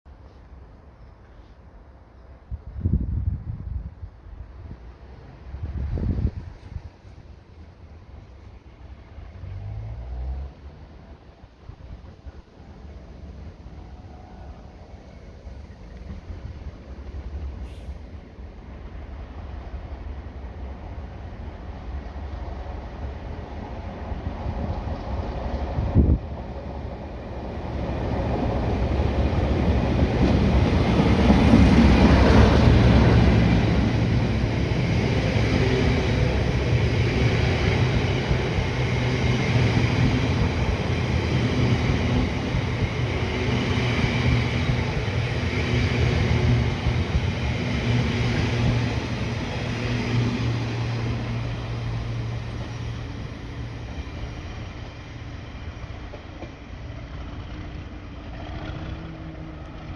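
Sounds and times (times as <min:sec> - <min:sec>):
diesel locomotive engine running: 0:28.2 - 0:59.9.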